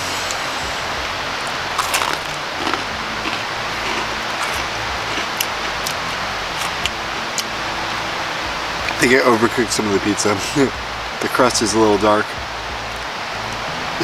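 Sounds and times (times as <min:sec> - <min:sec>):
steady rushing noise: 0:00.0 - 0:14.0
chewing crisp pizza crust: 0:01.8 - 0:06.9.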